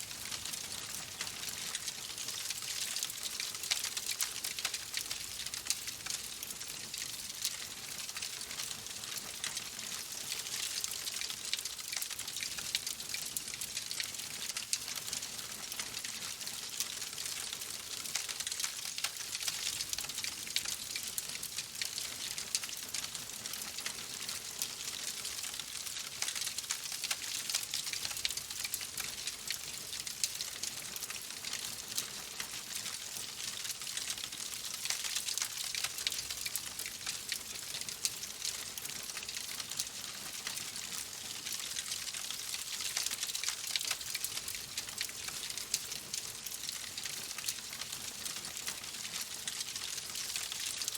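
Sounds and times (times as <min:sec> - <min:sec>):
wood fire crackling: 0:30.7 - 0:50.9.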